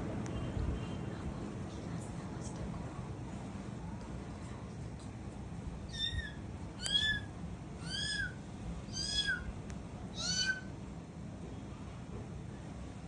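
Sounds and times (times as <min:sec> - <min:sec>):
cockatiel calling: 0:05.9 - 0:09.5, 0:10.1 - 0:10.7.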